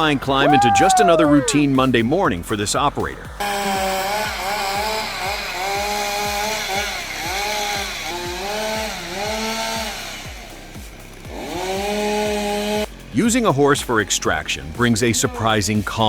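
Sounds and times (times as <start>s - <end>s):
chainsaw cutting: 3.4s - 13.2s.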